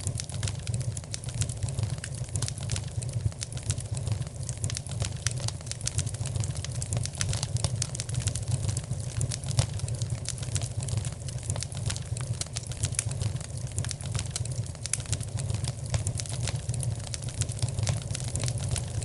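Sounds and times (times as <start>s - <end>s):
fire crackling in a fireplace: 0.0s - 19.0s.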